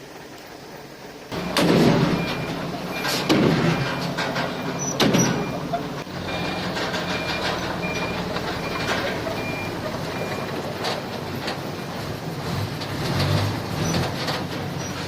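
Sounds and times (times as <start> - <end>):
diesel engine running: 0.0 - 15.0
reversing alarm beeping: 1.3 - 10.7.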